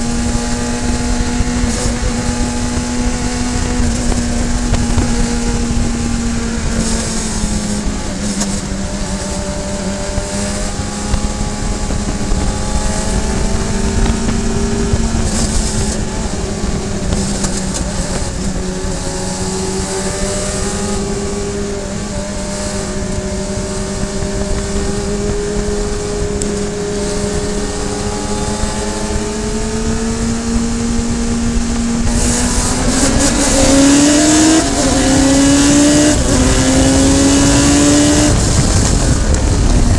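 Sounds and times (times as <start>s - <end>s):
racing car engine revving: 0.0s - 39.9s
wind and road noise: 0.0s - 39.9s.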